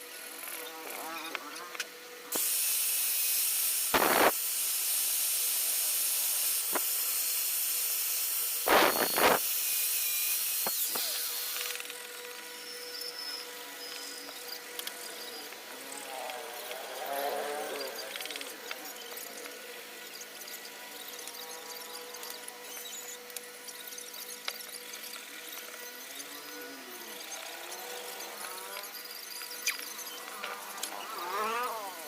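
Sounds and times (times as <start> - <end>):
compressed air hissing: 2.3 - 9.5.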